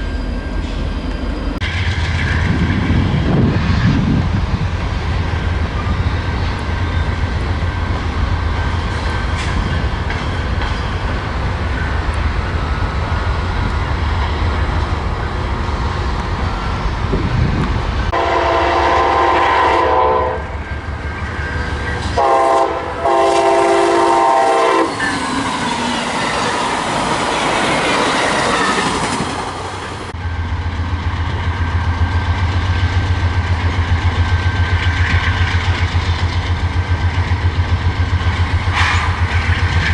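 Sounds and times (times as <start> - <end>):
diesel train rumbling: 0.0 - 39.9
train horn blasts: 18.1 - 20.6, 21.4 - 25.0.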